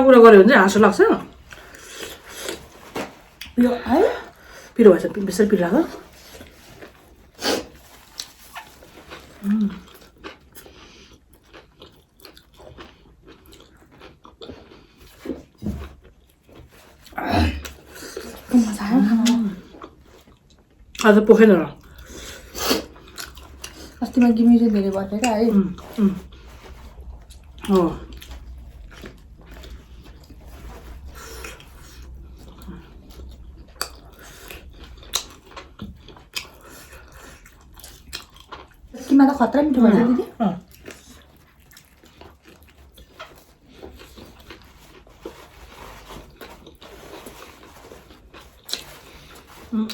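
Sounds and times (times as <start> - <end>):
chewing and crunching: 1.2 - 3.6, 4.2 - 49.9
soft scraping and rustling: 25.8 - 33.5, 42.6 - 49.9.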